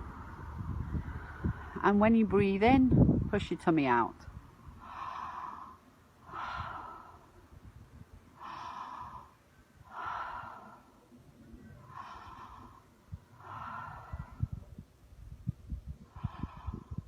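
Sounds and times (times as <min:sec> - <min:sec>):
wind on microphone: 0:00.0 - 0:05.7, 0:06.3 - 0:10.7, 0:11.6 - 0:17.0
woman breathing deeply: 0:04.6 - 0:17.0.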